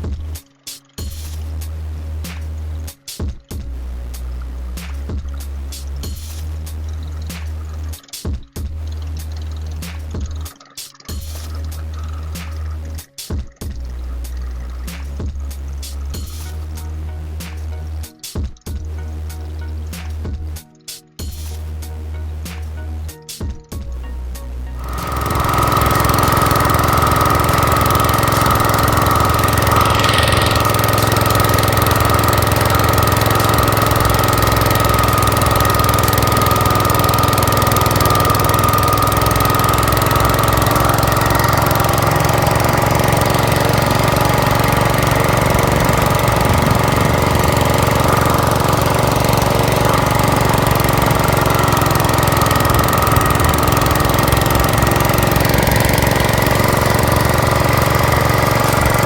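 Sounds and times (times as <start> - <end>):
high-pitched whine: 24.8 - 41.0
tractor engine running: 24.8 - 59.0.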